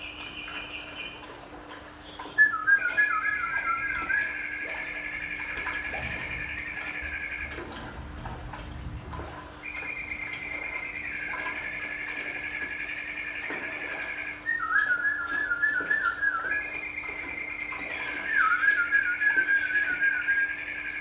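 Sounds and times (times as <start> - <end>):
steady low hum: 0.0 - 21.0
person whistling: 2.4 - 4.3, 14.5 - 16.7, 18.2 - 20.6.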